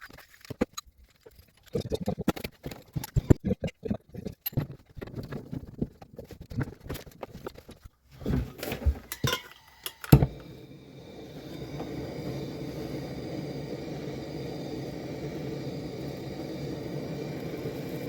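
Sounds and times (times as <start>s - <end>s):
metal tools clinking and knocking: 9.1s - 10.3s.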